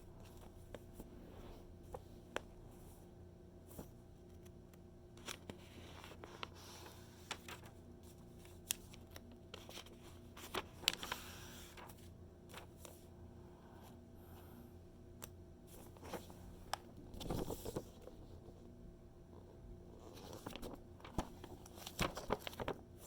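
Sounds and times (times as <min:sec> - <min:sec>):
paper rustling: 0:05.2 - 0:13.1, 0:15.7 - 0:18.7, 0:20.0 - 0:23.0.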